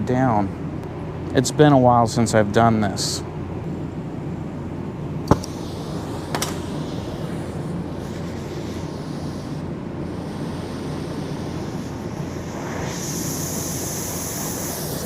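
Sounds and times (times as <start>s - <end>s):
torch flame roaring: 5.0s - 15.0s.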